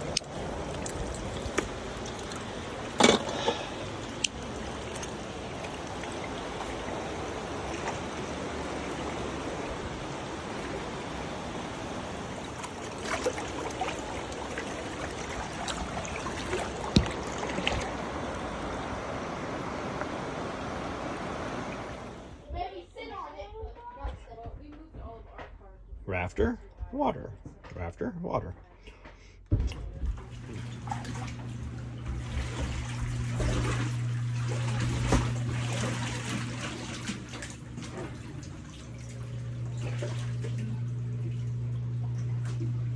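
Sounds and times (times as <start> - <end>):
small clicks and splashes: 0.0 - 10.8, 12.3 - 18.8, 29.6 - 42.9
floodwater running: 0.0 - 22.5, 29.7 - 42.9
low hum: 0.0 - 22.5, 30.1 - 42.9.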